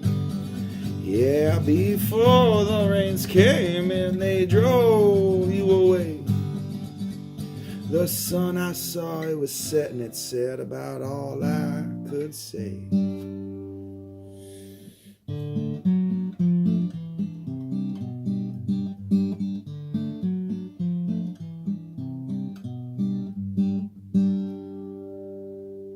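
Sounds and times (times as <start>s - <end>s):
acoustic guitar playing: 0.0s - 25.9s.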